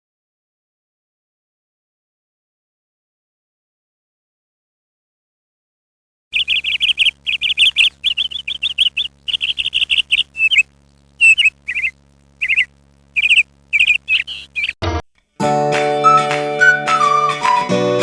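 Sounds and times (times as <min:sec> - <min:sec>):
birds chirping: 0:06.4 - 0:14.8
music: 0:15.4 - 0:18.0.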